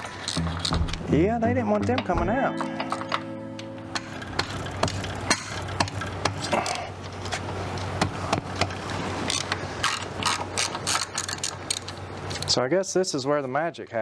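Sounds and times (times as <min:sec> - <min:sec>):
wrench clanking on metal: 0:00.0 - 0:01.2, 0:01.9 - 0:07.0
steady low hum: 0:00.0 - 0:12.4.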